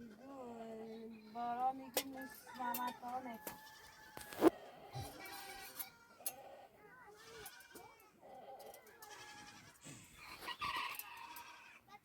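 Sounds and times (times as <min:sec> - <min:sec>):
goats bleating: 0:05.0 - 0:12.0.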